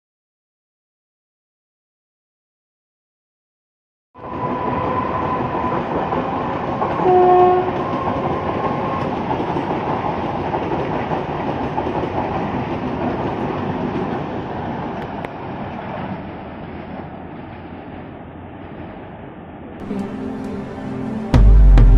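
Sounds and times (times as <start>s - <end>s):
trains rumbling on rails: 4.2s - 21.9s
train horn blast: 7.0s - 8.0s, 19.8s - 21.8s.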